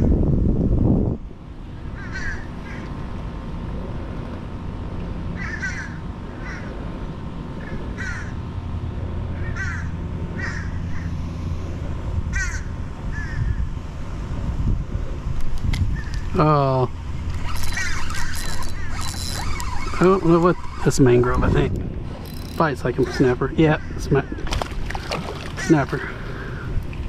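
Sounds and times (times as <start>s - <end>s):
bird calling: 1.9s - 3.0s, 5.4s - 6.8s, 7.6s - 8.4s, 9.3s - 11.3s, 12.3s - 13.7s, 15.9s - 21.5s, 22.2s - 26.8s.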